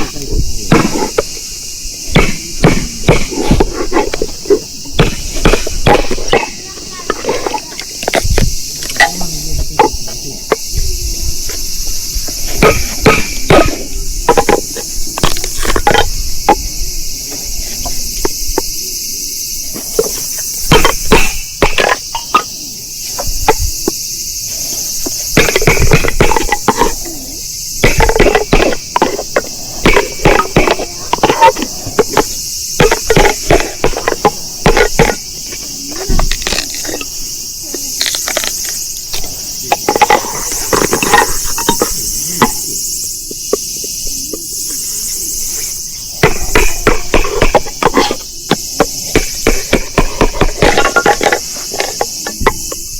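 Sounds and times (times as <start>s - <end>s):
crickets chirring: 0.0s - 52.9s.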